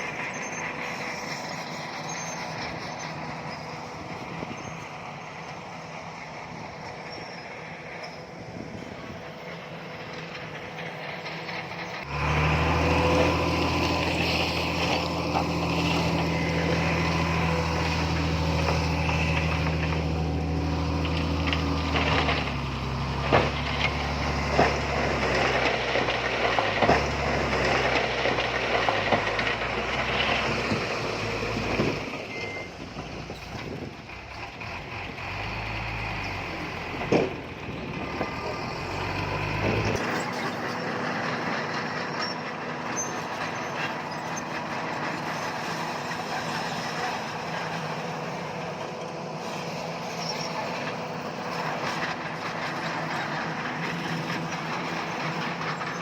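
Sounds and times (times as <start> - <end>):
diesel machinery engine: 0.0 - 56.0.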